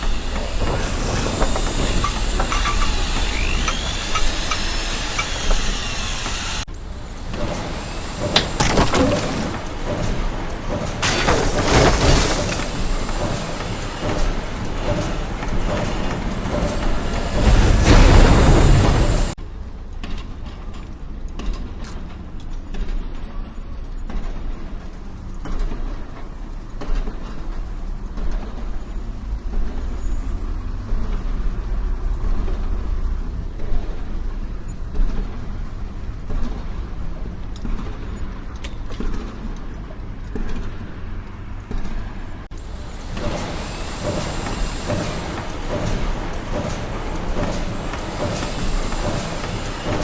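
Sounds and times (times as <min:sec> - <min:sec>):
different engine-like noise: 0:00.0 - 0:19.4, 0:42.5 - 0:50.0
engine knocks: 0:00.0 - 0:19.4, 0:42.5 - 0:50.0
large engine rumbling: 0:00.0 - 0:19.4, 0:42.5 - 0:50.0.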